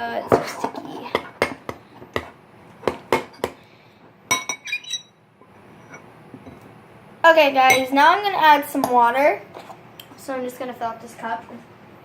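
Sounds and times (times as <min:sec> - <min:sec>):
utensil clinking against glass bowl: 0:04.3 - 0:05.1.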